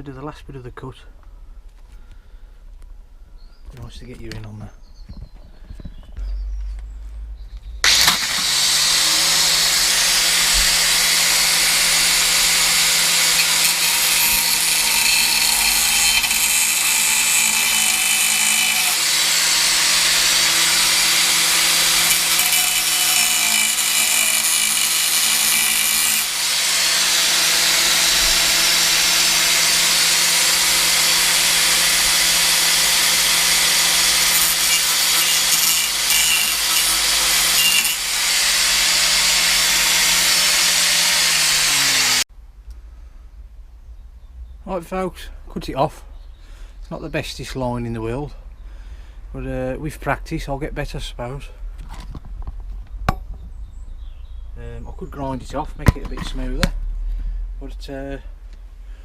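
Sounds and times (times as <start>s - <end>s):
angle grinder cutting metal: 7.8s - 42.3s.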